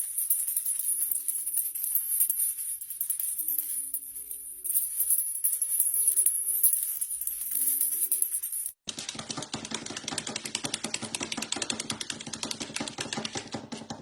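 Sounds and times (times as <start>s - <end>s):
maraca rattling: 0.0s - 8.8s.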